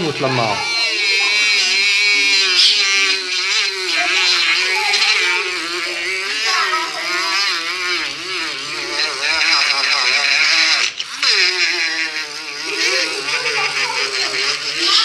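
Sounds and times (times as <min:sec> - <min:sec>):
rotary tool whining: 0:00.0 - 0:15.0.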